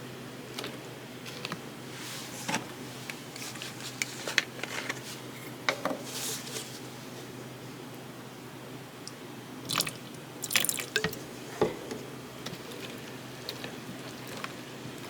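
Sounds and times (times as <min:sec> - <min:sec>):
faint steady hum: 0:00.0 - 0:15.0
slime squelching: 0:09.7 - 0:15.0.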